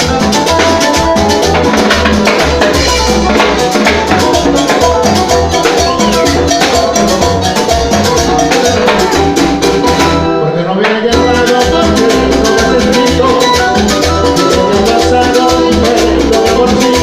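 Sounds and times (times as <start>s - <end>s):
bass line: 0.0s - 17.0s
latin dance band playing: 0.0s - 17.0s
percussion beat: 0.0s - 17.0s.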